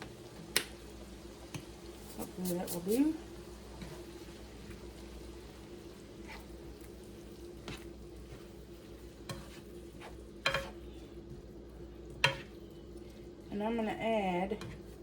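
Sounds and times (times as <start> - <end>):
meat sizzling in a pan: 0.0 - 15.0
utensil clicking on pan: 10.4 - 10.8.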